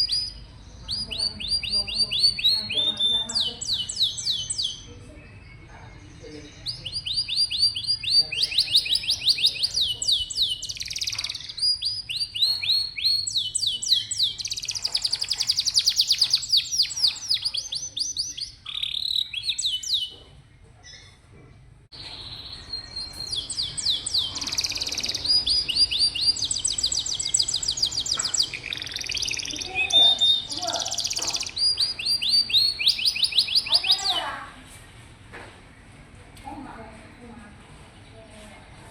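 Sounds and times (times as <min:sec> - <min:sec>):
canary singing trills: 0:00.0 - 0:21.3, 0:21.9 - 0:34.7.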